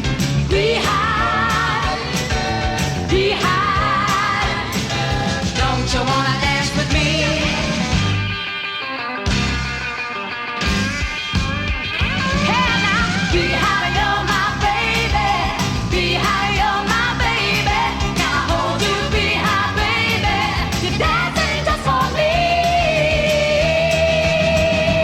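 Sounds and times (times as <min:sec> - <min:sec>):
band playing rock and roll: 0:00.0 - 0:25.0
woman singing: 0:00.5 - 0:02.3, 0:03.1 - 0:07.6, 0:12.5 - 0:25.0.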